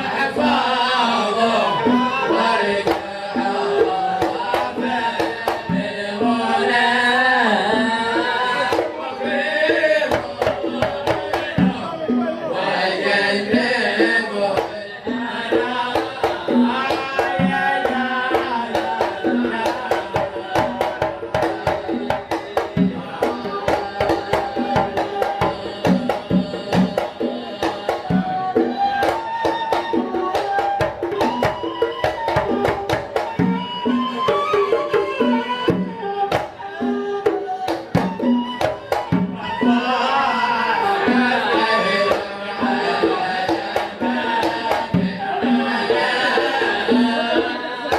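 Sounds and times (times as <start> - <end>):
man singing: 0.0 - 29.2, 38.7 - 47.9
hand drums beating: 0.0 - 47.9.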